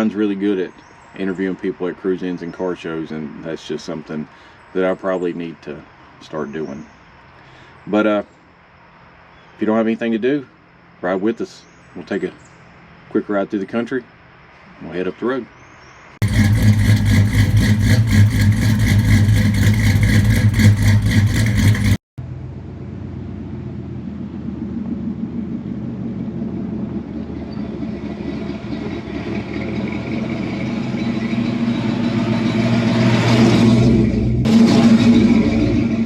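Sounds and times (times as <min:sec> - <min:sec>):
road noise: 0:00.0 - 0:36.0
vehicle engine pulsing: 0:16.2 - 0:36.0.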